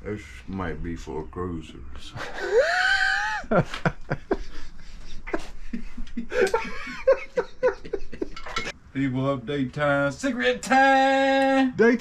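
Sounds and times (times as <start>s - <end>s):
men laughing: 2.1s - 8.7s.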